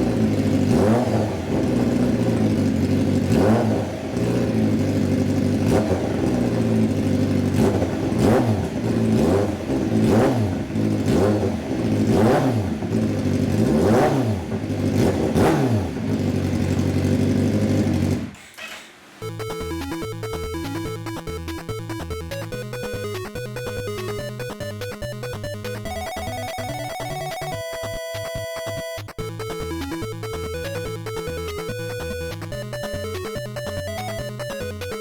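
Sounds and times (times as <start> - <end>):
motorcycle engine revving: 0.0 - 19.2.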